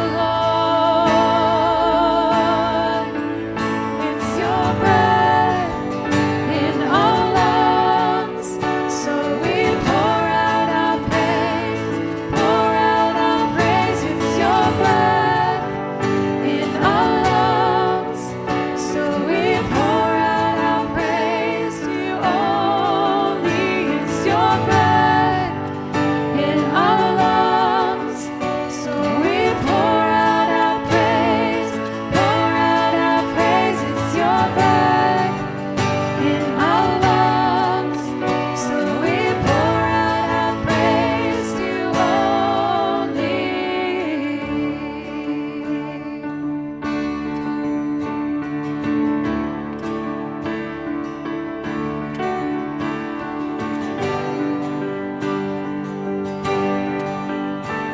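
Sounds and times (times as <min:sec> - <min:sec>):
person singing worship song: 0:00.0 - 0:46.3.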